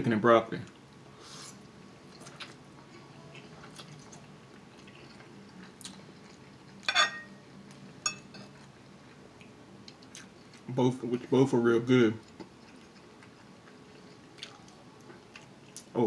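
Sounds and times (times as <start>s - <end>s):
quiet chewing: 2.1s - 6.9s, 8.5s - 11.4s, 12.2s - 15.9s
metal fork clinking on plate: 6.9s - 7.3s, 8.0s - 8.5s.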